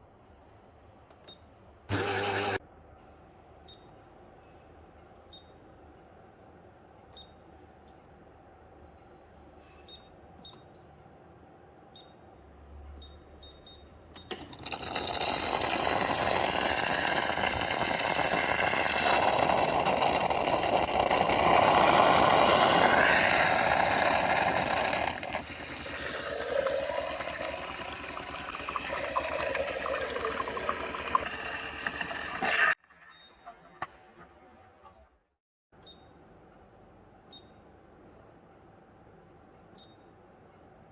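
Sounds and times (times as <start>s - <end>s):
steam wand hissing: 14.5s - 32.8s.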